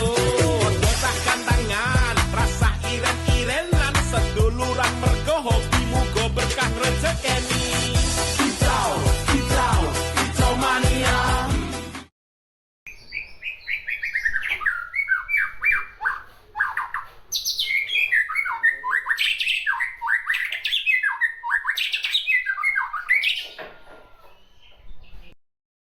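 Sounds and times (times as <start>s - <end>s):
songbird singing: 12.9s - 25.4s.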